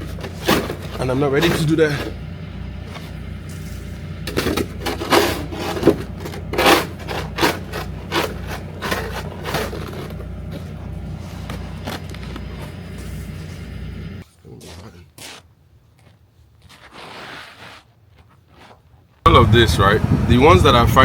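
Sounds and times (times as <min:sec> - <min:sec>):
tool scraping ice off walkway: 0:00.0 - 0:13.8.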